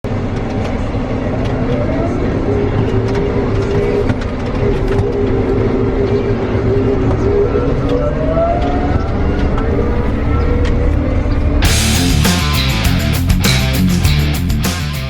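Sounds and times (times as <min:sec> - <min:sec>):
engine whine rising in pitch: 0:00.1 - 0:15.0
farm machine engine rumbling: 0:09.7 - 0:14.4.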